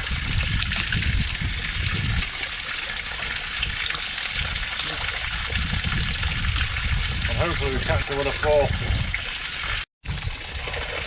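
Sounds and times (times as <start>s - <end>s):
water gushing onto mud: 0.0s - 11.0s.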